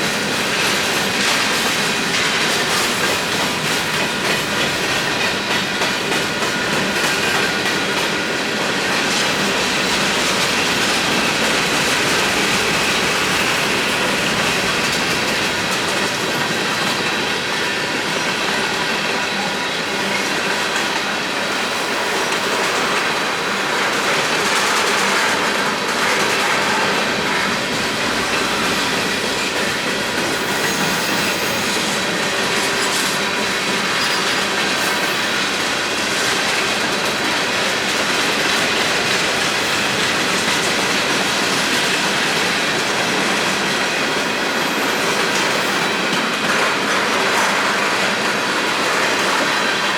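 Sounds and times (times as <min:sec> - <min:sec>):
train wheels clattering over rails: 0:00.0 - 0:49.9
high wheel squeal: 0:30.2 - 0:33.1.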